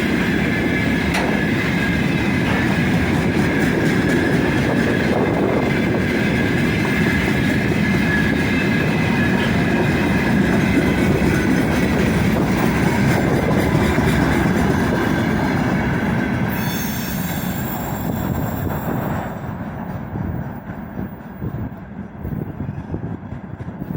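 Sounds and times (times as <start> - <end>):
freight wagons rumbling on rails: 0.0 - 23.9
wheels squealing: 6.3 - 19.1.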